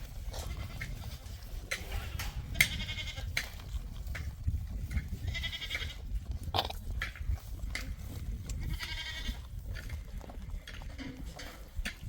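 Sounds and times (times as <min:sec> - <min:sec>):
goat bleating: 0:01.8 - 0:03.3, 0:05.2 - 0:06.1, 0:08.6 - 0:09.5.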